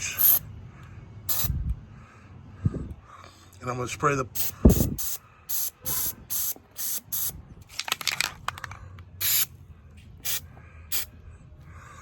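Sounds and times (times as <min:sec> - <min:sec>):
clicking and rattling: 0:07.7 - 0:09.0.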